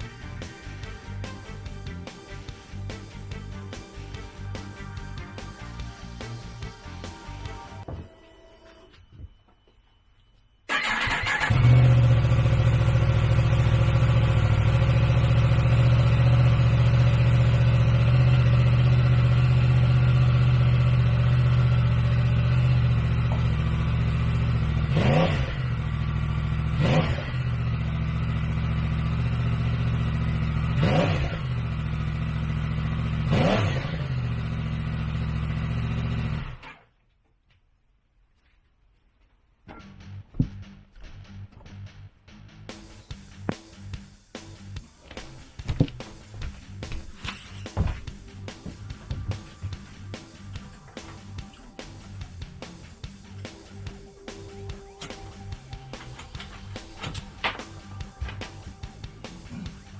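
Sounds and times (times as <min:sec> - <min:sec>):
motorcycle engine revving: 0:10.7 - 0:36.8, 0:48.4 - 0:59.9.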